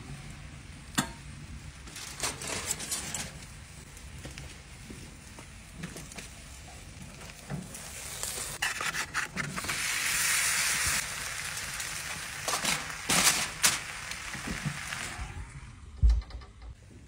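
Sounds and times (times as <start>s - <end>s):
aluminium foil crinkling: 1.8s - 3.6s, 11.0s - 15.1s
potatoes sizzling in pan: 5.6s - 15.6s.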